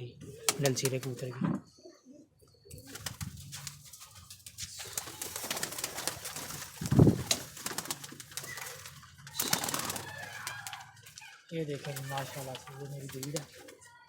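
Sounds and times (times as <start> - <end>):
pigeons cooing: 0.0 - 11.2.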